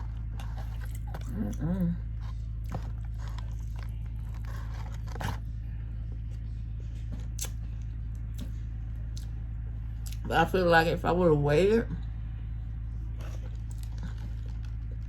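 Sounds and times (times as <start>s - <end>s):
person chewing food: 0.0s - 9.4s, 10.0s - 10.3s, 13.0s - 15.0s
steady low hum: 0.0s - 15.0s.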